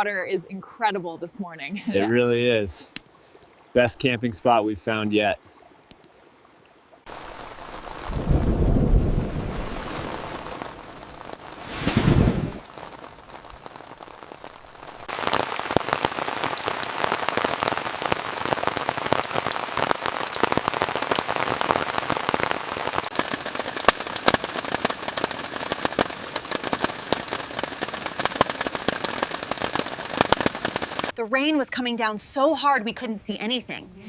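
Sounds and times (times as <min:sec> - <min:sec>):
heavy rain pattering: 0:07.1 - 0:31.9.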